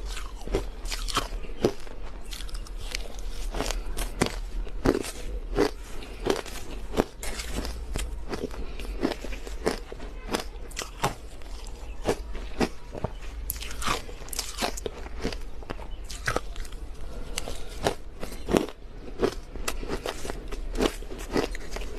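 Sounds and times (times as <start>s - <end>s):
chewing crushed ice: 0.0s - 21.9s.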